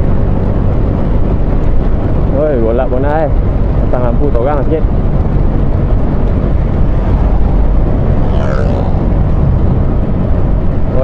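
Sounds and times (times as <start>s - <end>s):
wet road noise: 0.0s - 11.0s
wind buffeting microphone: 0.0s - 11.0s.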